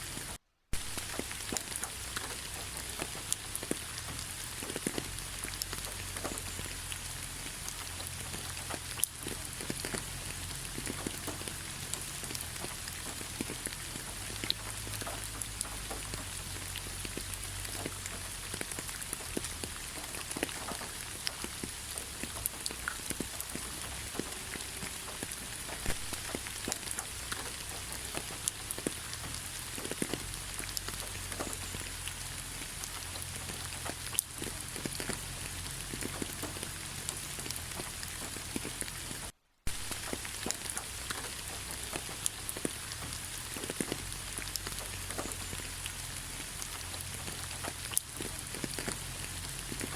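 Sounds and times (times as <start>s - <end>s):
close raindrops striking: 0.0s - 49.9s
steady rain: 0.0s - 49.9s.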